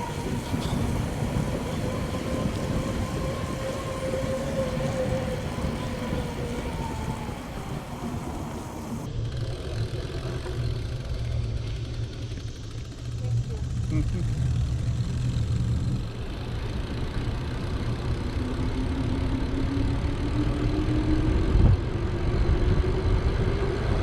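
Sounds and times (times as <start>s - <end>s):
wind buffeting microphone: 0.0s - 9.1s
bicycle tyres rolling on pavement: 0.0s - 24.0s.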